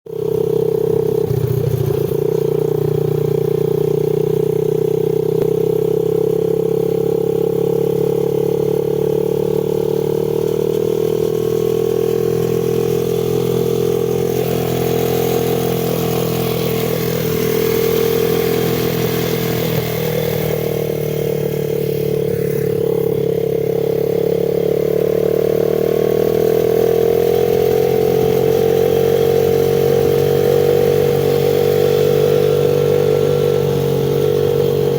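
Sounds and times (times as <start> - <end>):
dirt bike engine running: 0.1 - 34.9.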